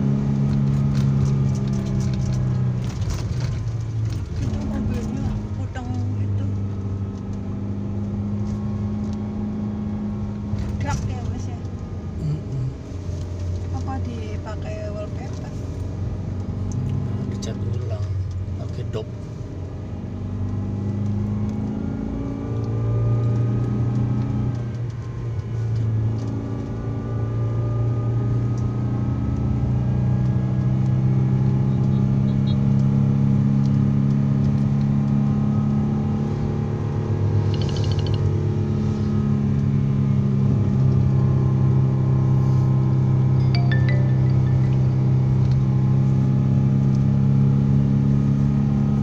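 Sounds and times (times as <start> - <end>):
car engine humming under load: 0.0 - 49.0.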